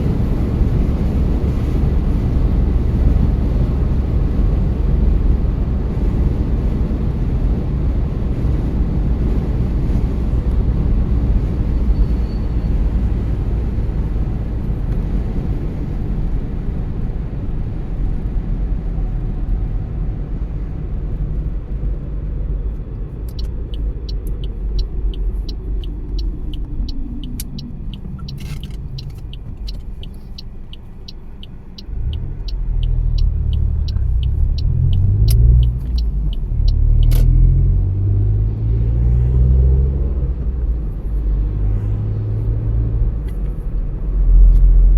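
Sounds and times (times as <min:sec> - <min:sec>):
road and tyre rumble: 0:00.0 - 0:44.9
turn signal ticking: 0:22.7 - 0:37.8.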